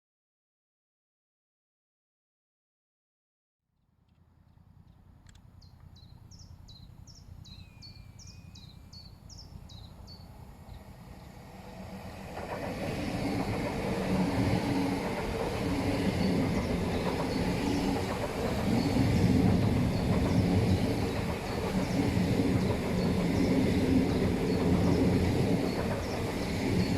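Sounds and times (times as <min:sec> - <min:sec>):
train passing on rails: 0:06.1 - 0:26.9.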